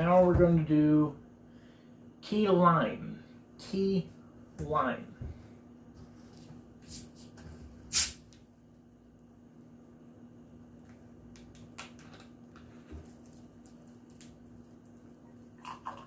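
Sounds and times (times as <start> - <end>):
carbonated bottle opening hiss: 6.8 - 7.3, 7.9 - 8.3.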